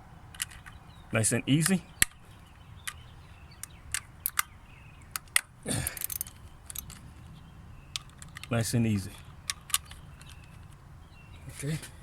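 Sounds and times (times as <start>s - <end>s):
small wrench clicking on metal: 5.2s - 7.0s.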